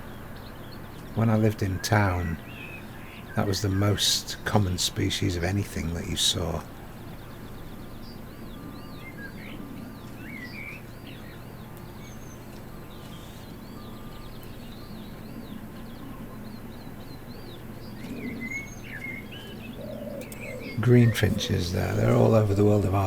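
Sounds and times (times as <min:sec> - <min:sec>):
small birds chirping and twittering: 0:00.0 - 0:23.0
steady low background hum: 0:00.0 - 0:23.0.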